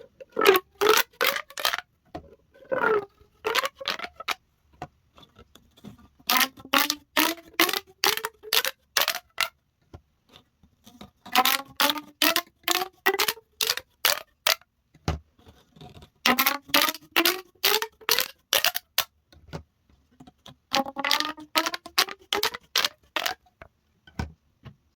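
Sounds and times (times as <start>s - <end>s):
plastic pop tubes clicking: 0.0s - 4.8s, 6.2s - 9.6s, 11.3s - 15.2s, 16.2s - 19.6s, 20.3s - 24.4s.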